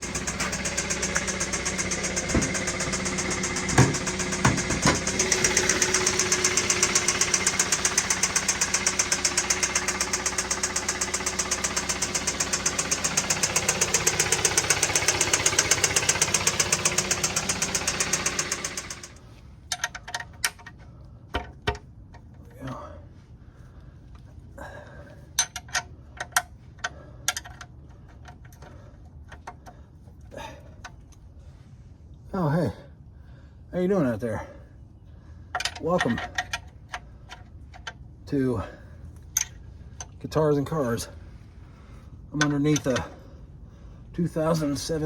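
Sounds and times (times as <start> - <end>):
engine rod knock: 0.0 - 19.1.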